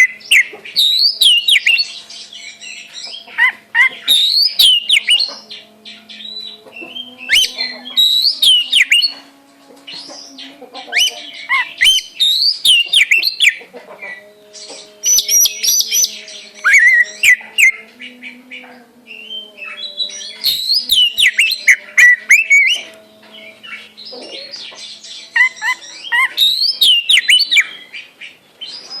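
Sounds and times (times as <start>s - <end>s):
songbirds chirping and whistling: 0.0s - 29.0s.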